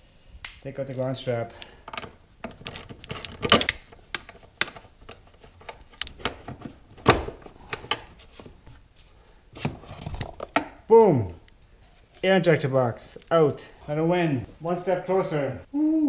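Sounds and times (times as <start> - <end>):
tools and metal parts knocking: 1.8 - 4.8.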